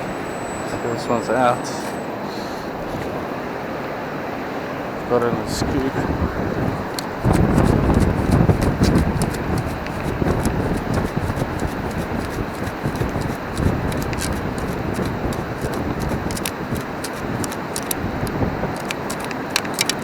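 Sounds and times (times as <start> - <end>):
wind: 0.0 - 20.0
sand rattling in a scoop: 6.9 - 18.1, 18.8 - 20.0.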